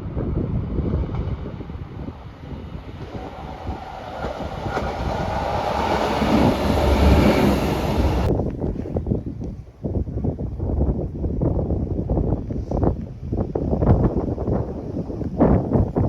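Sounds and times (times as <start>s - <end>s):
train running past: 0.0s - 8.3s.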